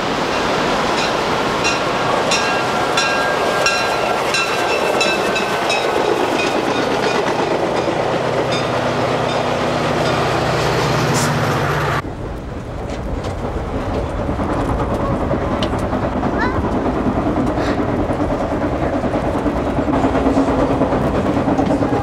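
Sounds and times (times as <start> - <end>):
train rolling noise and hum: 0.0 - 22.0
train wheels clicking over rail joints: 0.4 - 22.0
rumble inside passenger coach: 10.9 - 22.0.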